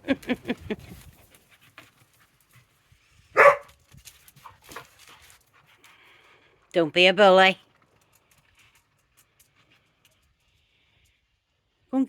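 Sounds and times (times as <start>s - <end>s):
dog barking: 3.4s - 3.7s.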